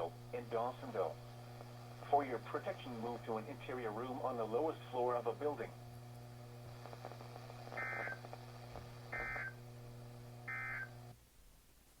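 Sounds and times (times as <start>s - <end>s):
radio receiver hum: 0.0s - 11.2s
buzzing data bursts: 6.7s - 8.3s, 9.0s - 9.6s, 10.4s - 11.0s.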